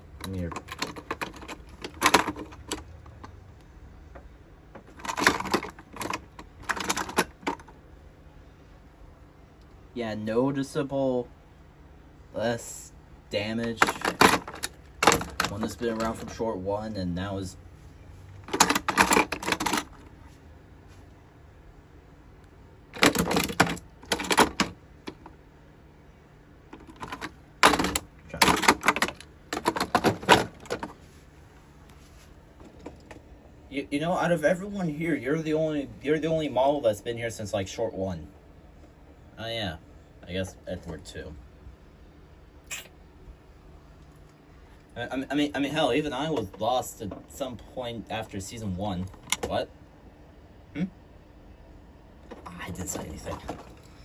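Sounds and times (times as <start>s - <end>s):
plastic toy trains clattering: 18.5s - 20.1s.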